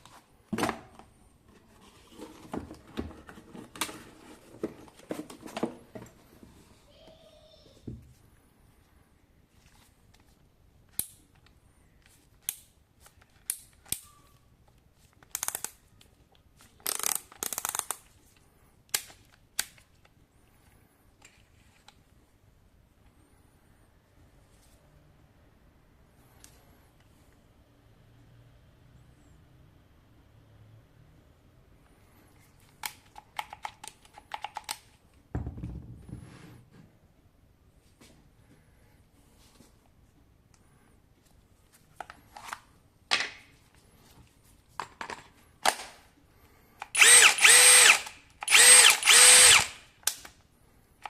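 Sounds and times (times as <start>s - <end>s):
sharp plastic clicks: 15.2s - 15.8s, 16.8s - 18.1s.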